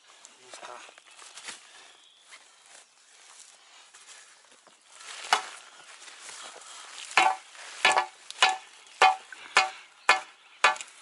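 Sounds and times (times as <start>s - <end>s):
shovel striking ground: 7.2s - 11.0s.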